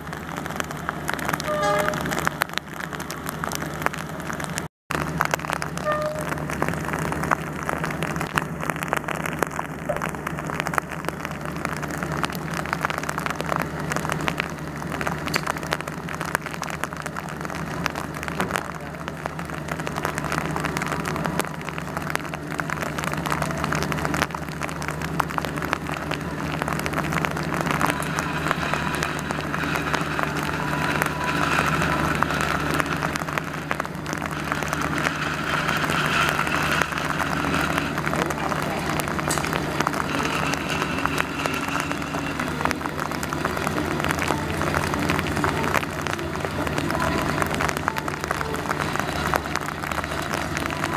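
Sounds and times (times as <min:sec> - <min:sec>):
high held tones: 0:00.0 - 0:04.4, 0:05.5 - 0:08.2
low steady hum: 0:00.0 - 0:50.9
rain pattering: 0:00.0 - 0:50.9.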